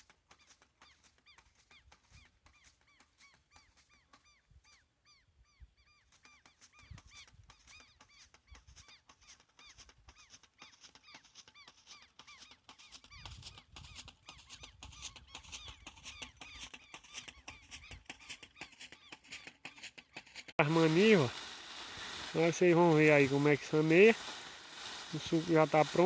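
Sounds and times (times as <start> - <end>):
rapid bird chirping: 0.8 - 19.9.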